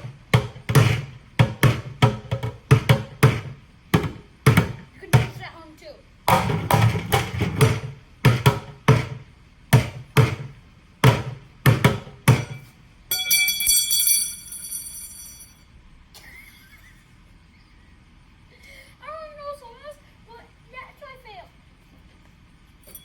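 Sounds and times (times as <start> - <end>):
drumsticks beating plastic buckets: 0.0 - 5.4, 6.3 - 9.2, 9.8 - 14.2
ringing metallic tone: 12.4 - 15.7.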